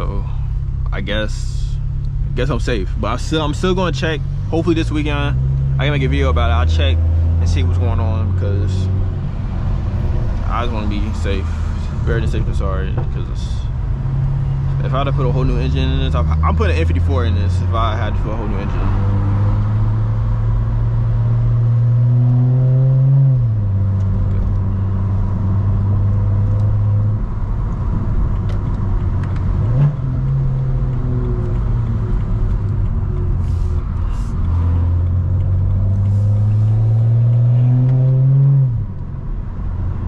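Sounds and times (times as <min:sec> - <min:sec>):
car engine revving through gears: 0:02.2 - 0:40.0.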